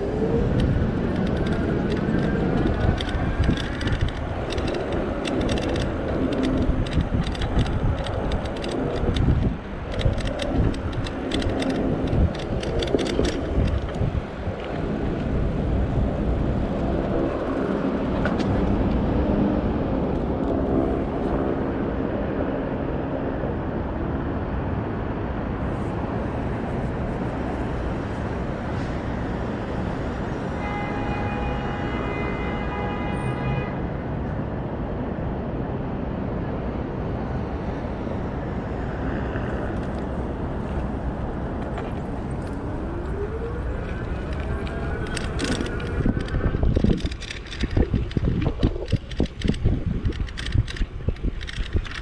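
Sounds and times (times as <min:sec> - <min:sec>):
sharp clicks and rattles: 0:00.0 - 0:19.1, 0:39.0 - 0:52.0
wind rushing past bike: 0:00.0 - 0:31.9, 0:34.4 - 0:52.0
street traffic: 0:00.0 - 0:52.0.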